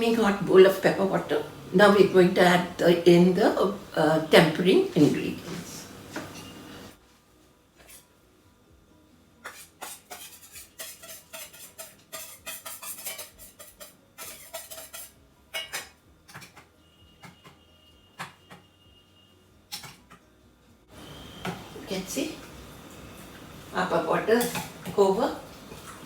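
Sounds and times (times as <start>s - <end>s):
metal spoon scraping bowls: 9.4s - 16.6s.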